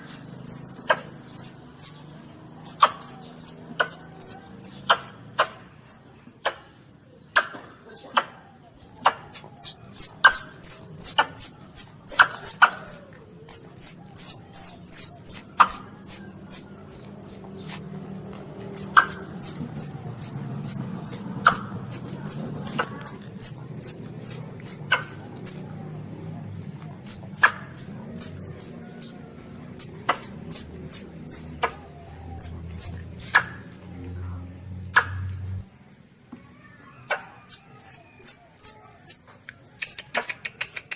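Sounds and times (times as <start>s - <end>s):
civet high-pitched squeaks: 0.0s - 6.0s, 9.3s - 25.7s, 27.0s - 33.7s, 37.0s - 40.9s.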